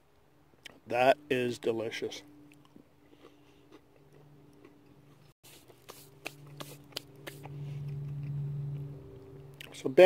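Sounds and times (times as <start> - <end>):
steady low hum: 0.0 - 10.0
man chewing: 0.6 - 0.8, 2.4 - 9.8.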